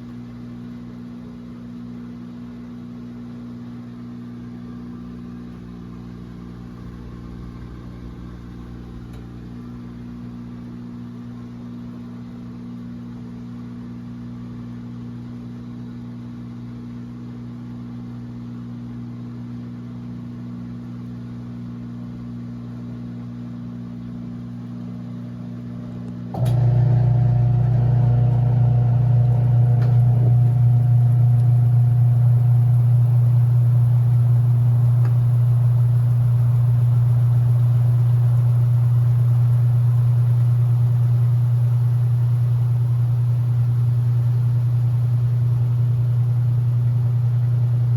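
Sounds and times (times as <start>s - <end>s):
washing machine motor hum: 0.0s - 15.0s, 23.4s - 47.9s.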